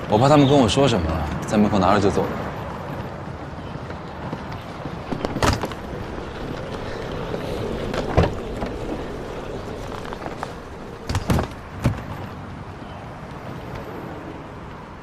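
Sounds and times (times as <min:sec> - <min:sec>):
car rumble: 0:04.4 - 0:13.2.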